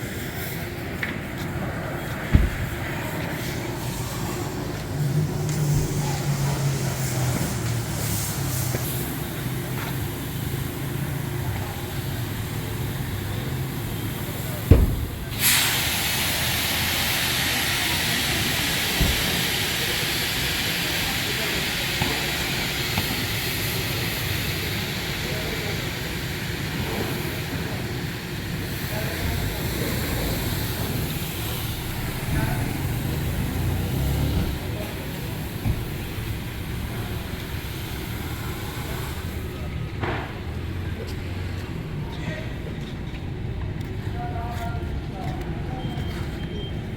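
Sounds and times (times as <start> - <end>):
engine humming: 0.8 - 8.0, 12.2 - 16.2, 29.8 - 41.8
pressure washer spraying: 2.2 - 4.0, 14.3 - 22.0
single knock: 2.3 - 2.8, 14.7 - 15.4
dull thump: 2.3 - 3.0, 14.7 - 15.6.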